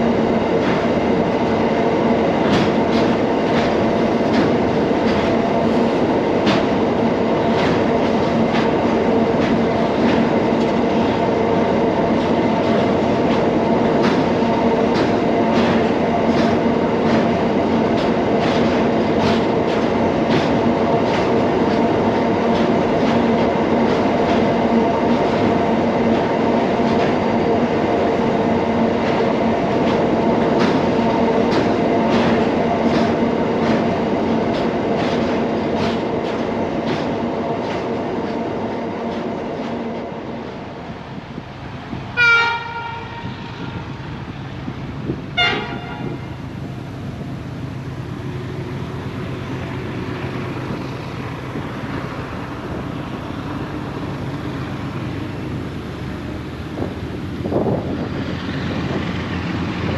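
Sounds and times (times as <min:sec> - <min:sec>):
freight train rumbling over bridge: 0:00.0 - 0:59.9
wheel clicks over rail joints: 0:12.2 - 0:21.9, 0:30.6 - 0:38.4.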